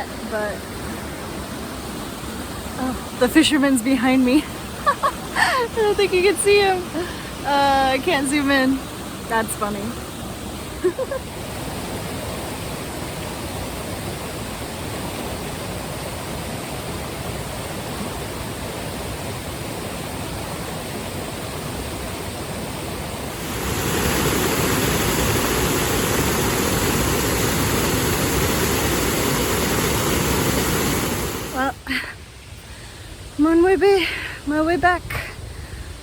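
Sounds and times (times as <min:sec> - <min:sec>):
waterfall rushing: 0:10.4 - 0:32.0.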